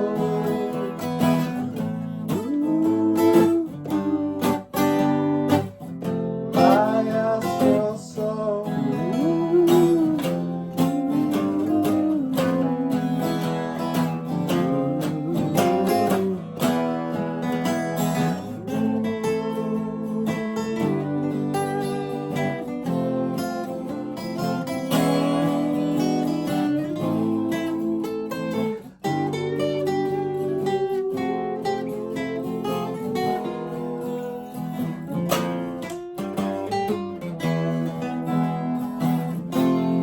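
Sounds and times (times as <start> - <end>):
acoustic guitars playing: 0.0 - 40.0.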